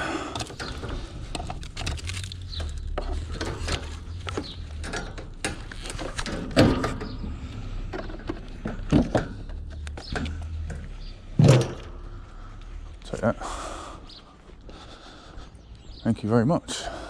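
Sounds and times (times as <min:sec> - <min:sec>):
knocks and clicks: 0:00.4 - 0:12.0.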